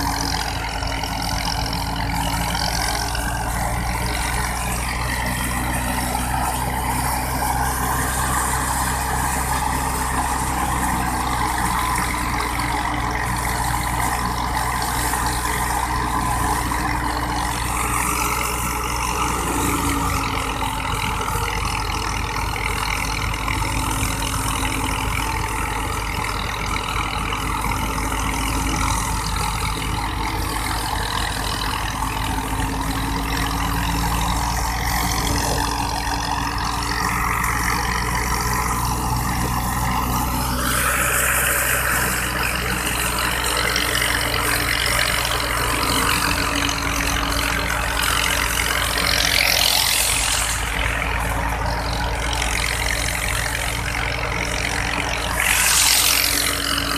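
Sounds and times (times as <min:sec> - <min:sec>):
engine drone: 0:00.0 - 0:56.9
thresher rushing hissing noise: 0:55.1 - 0:56.9.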